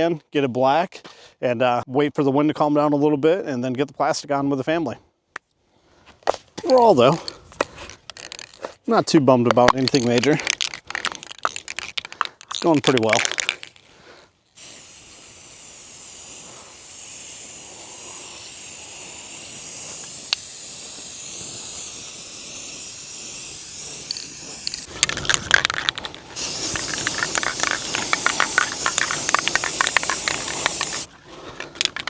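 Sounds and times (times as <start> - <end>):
spray paint can hissing: 6.6 - 8.7, 9.5 - 14.0, 14.6 - 31.1
crackling rustle: 6.8 - 8.9, 9.5 - 14.6, 24.1 - 32.0.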